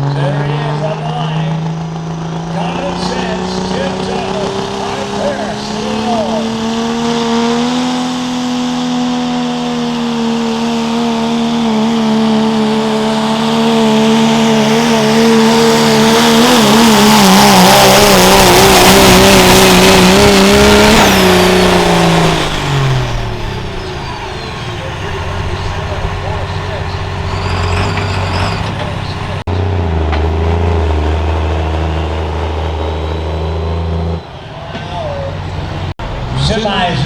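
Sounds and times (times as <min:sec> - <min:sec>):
diesel truck engine at high revs: 0:00.0 - 0:37.0
high turbo whine: 0:00.0 - 0:37.0.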